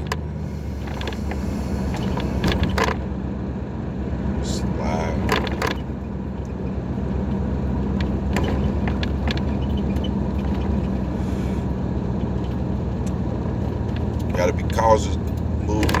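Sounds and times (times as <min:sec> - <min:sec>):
engine and road noise in cab: 0:00.0 - 0:16.0
light clicks and rattles: 0:00.8 - 0:03.0, 0:05.2 - 0:06.7, 0:07.3 - 0:11.1.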